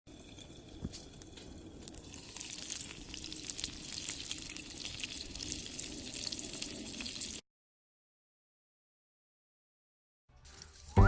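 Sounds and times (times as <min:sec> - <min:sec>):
hot oil popping: 0:00.1 - 0:07.4, 0:10.3 - 0:11.0
dumplings sizzling in a skillet: 0:00.2 - 0:07.4, 0:10.4 - 0:11.0.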